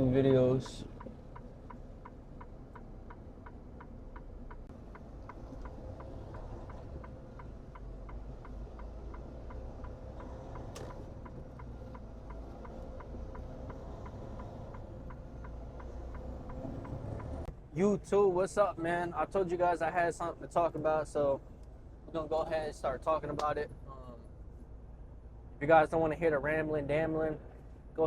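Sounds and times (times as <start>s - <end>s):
turn signal ticking: 0.0s - 19.0s
low engine and road rumble: 0.0s - 28.0s.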